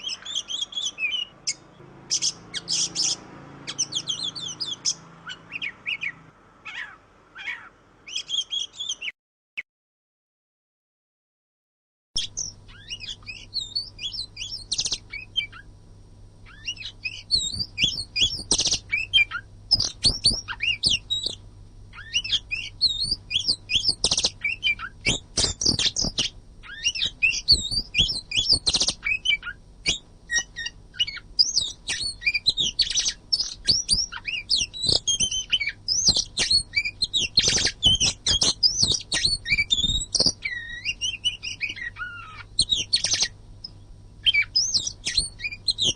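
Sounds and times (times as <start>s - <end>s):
bird singing whistles and chatter: 0.0s - 9.1s, 12.2s - 15.7s, 16.5s - 21.4s, 22.0s - 45.9s
faint low hum: 12.2s - 45.9s.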